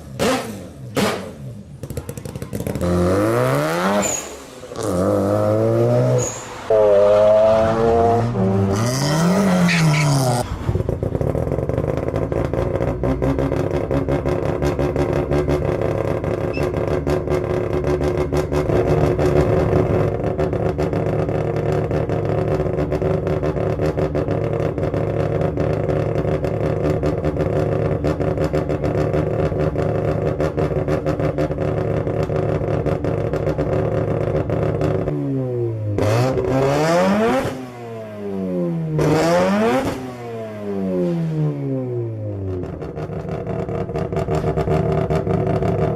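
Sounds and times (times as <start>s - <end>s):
rotary engine idling and revving: 0.0s - 45.9s.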